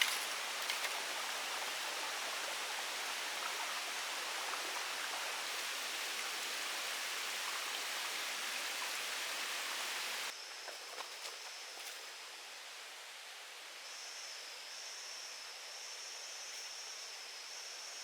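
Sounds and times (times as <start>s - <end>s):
rushing water: 0.0s - 10.3s.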